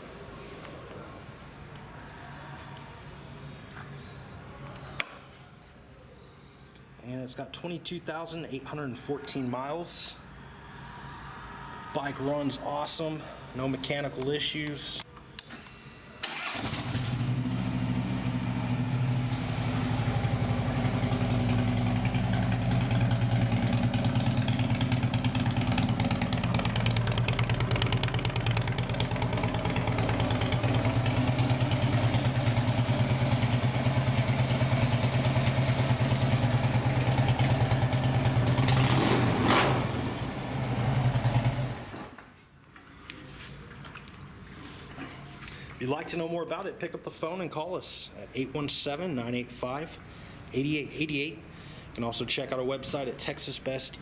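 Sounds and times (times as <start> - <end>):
motorcycle engine idling: 16.9 - 41.9.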